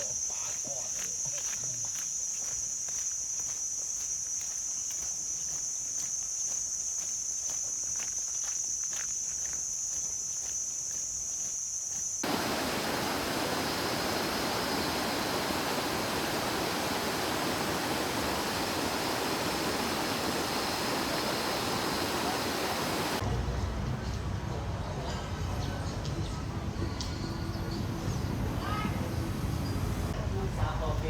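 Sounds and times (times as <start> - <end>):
high-pitched insect drone: 0.0 - 23.2
flowing water rushing: 12.2 - 23.2.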